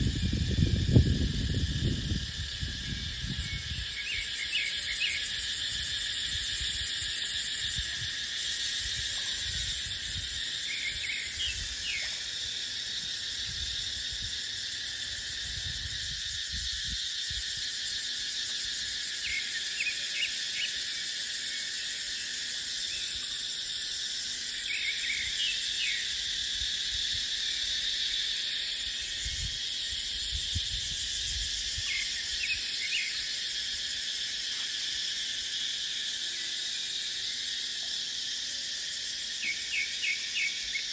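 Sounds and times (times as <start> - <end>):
wind gusting: 0.0 - 3.8
cicadas droning: 0.0 - 40.9.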